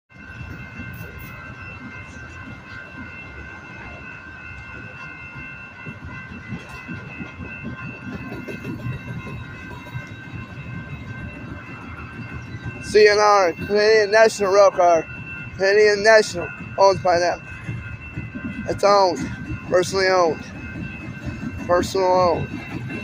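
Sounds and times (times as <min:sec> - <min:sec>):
train cars rumbling past: 0:00.1 - 0:23.0.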